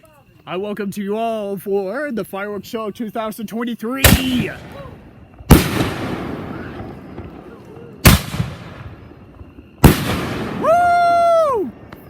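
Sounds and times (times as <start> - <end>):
fireworks bangs and crackle: 4.0 - 12.0.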